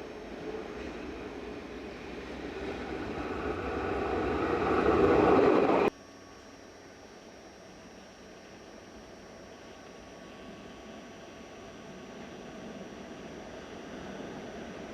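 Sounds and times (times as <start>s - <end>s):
vehicle approaching: 1.2s - 5.9s.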